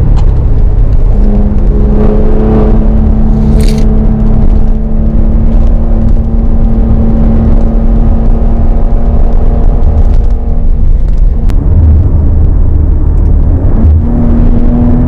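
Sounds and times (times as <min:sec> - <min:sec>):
car engine running steadily: 0:00.0 - 0:15.0
low road rumble: 0:00.0 - 0:15.0.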